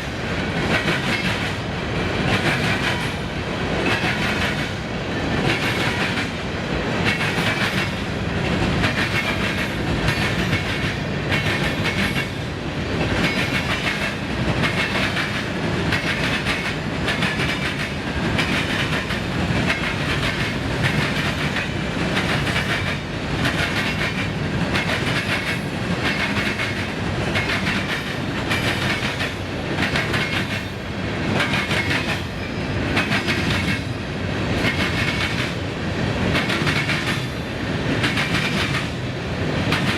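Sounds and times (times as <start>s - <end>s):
train rumble: 0.0s - 39.9s
train wheels clacking: 0.0s - 39.9s.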